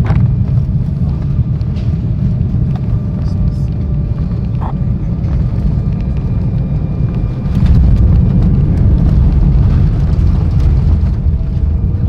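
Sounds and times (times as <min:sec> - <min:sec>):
jet cabin engine rumble: 0:00.0 - 0:12.0.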